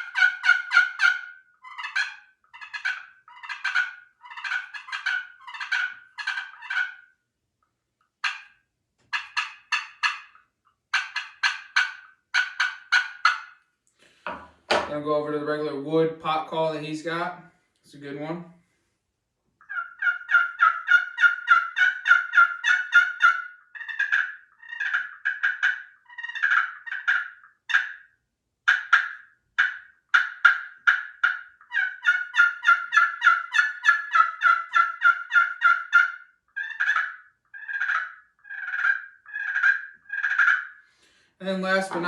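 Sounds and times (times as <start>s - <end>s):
turkey pot call yelps: 0.0s - 7.2s, 8.2s - 13.6s, 19.6s - 28.1s, 28.7s - 41.0s.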